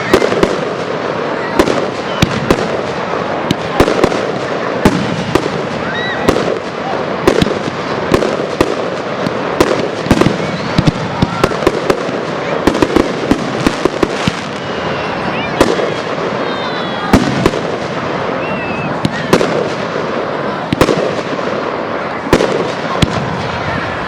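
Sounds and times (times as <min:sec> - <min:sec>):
fireworks bangs: 0:00.0 - 0:24.0
rumble of fireworks bursts: 0:00.0 - 0:24.0
whistling fireworks shells: 0:18.3 - 0:19.6.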